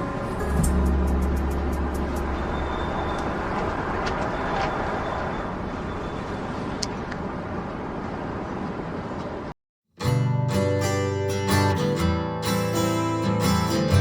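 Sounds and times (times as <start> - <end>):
deep vehicle rumble: 0.0 - 9.5.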